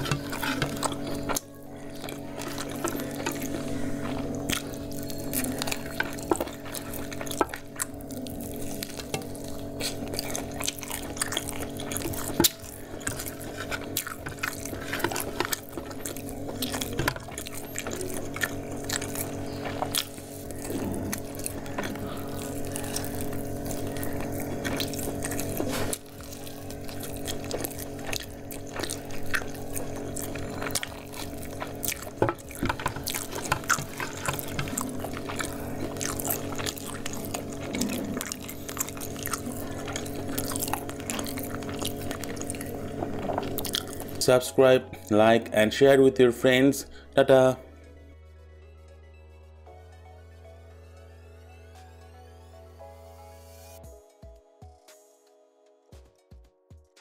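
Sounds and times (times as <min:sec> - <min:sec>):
wet chewing and lip-smacking: 0:00.0 - 0:45.3
steady low hum: 0:00.0 - 0:53.9.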